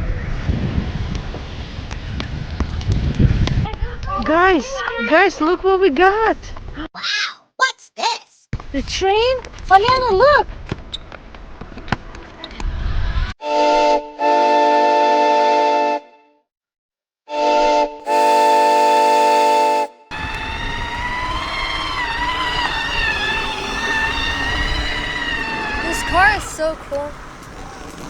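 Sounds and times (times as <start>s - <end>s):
toy train steam whistle: 17.6s - 28.0s.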